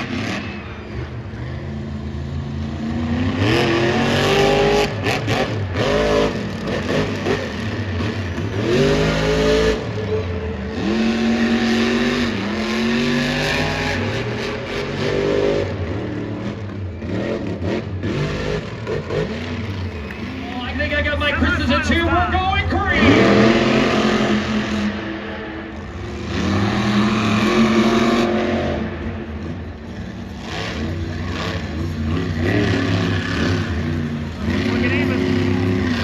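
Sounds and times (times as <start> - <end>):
monster truck engines revving: 0.0 - 36.0.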